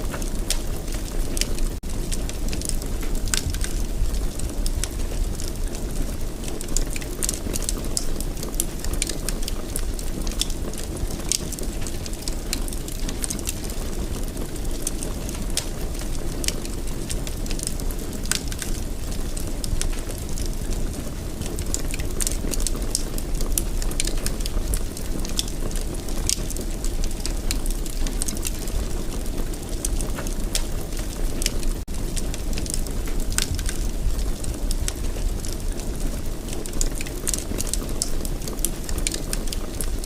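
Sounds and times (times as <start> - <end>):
fireplace fire crackling: 0.0 - 40.0.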